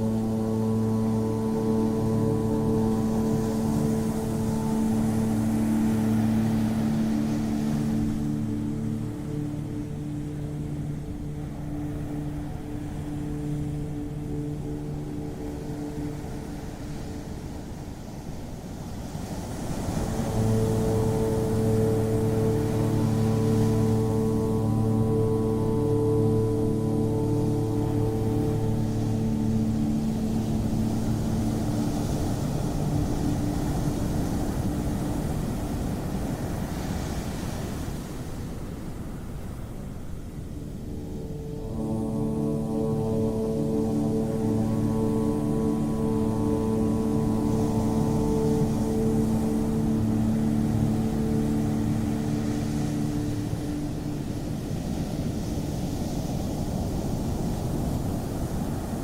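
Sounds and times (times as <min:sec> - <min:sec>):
musical drone: 0:00.0 - 0:39.4, 0:40.0 - 0:59.0
ocean surf washing: 0:00.0 - 0:59.0.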